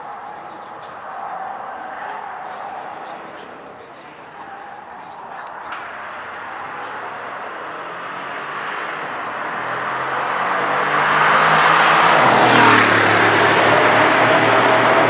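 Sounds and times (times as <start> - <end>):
car engine driving by: 0.0 - 15.0.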